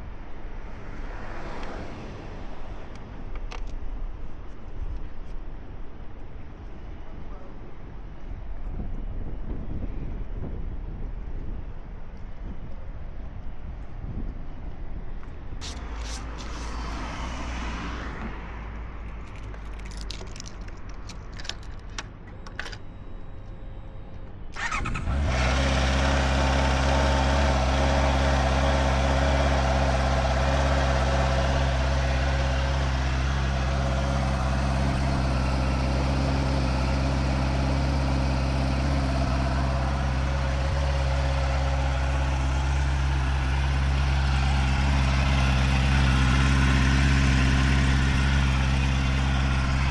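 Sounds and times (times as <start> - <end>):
motorcycle engine starting and idling: 15.6 - 17.6, 24.2 - 49.9
clicks and light rattles: 19.0 - 22.9.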